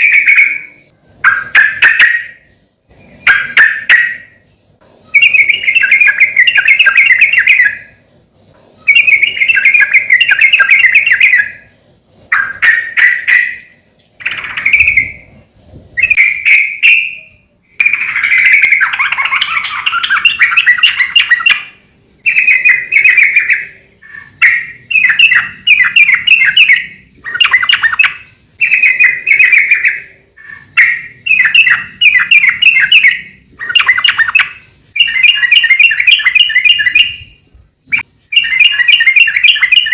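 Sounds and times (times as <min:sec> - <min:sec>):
bird chattering song: 0:00.0 - 0:04.5, 0:05.1 - 0:08.0, 0:08.7 - 0:11.7, 0:12.3 - 0:15.4, 0:16.0 - 0:39.9.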